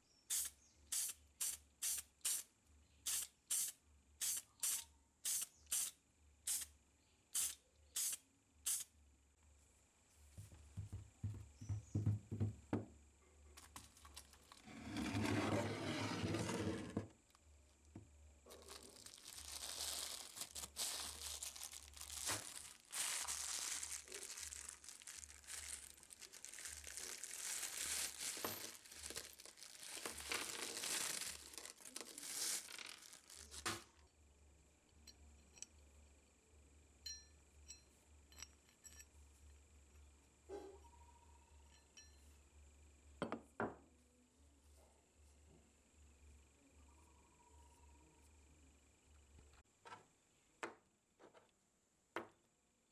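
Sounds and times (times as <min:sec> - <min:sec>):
plastic bag crinkling: 0:18.5 - 0:34.0
light metal clinks: 0:37.0 - 0:39.6, 0:41.6 - 0:42.4.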